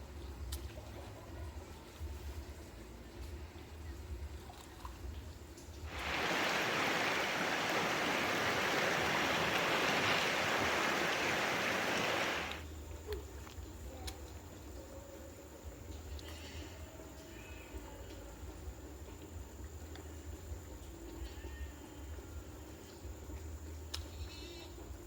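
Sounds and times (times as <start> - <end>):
running water: 5.7 - 12.6.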